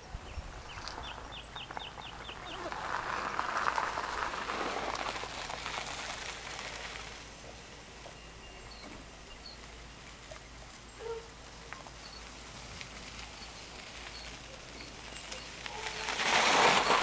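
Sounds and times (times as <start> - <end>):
birds calling: 0.0 - 2.9, 7.4 - 12.5, 13.2 - 16.2.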